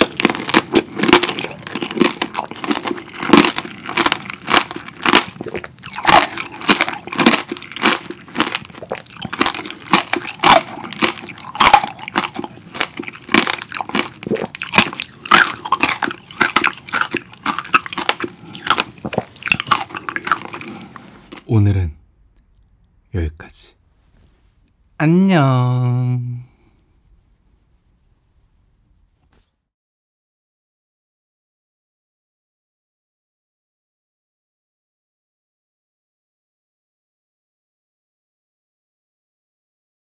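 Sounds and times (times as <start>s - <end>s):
candy shell crunching: 0.0s - 21.5s
wet chewing of strawberry: 0.0s - 21.5s.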